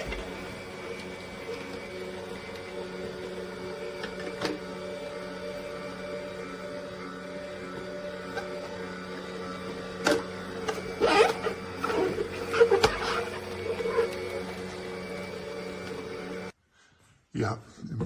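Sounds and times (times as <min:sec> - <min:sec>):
juicer motor humming: 0:00.0 - 0:16.6
squeaks and crackles: 0:10.6 - 0:16.0.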